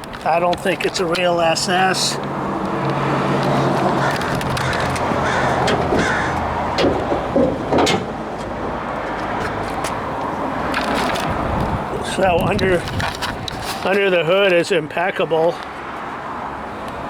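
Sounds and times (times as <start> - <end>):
sharp knocks and clunks: 2.6 - 10.0.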